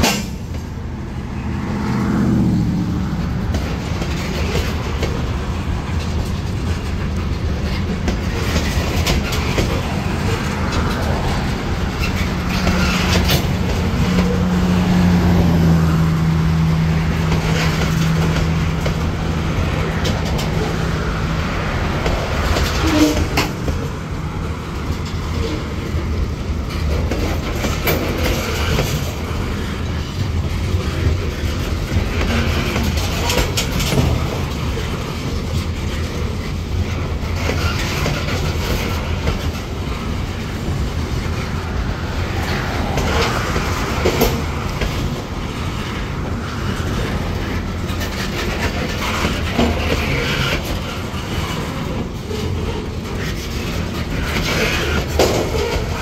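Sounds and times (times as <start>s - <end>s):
low train rumble: 0.0s - 56.0s
train wheels clanking over rail joints: 0.0s - 56.0s.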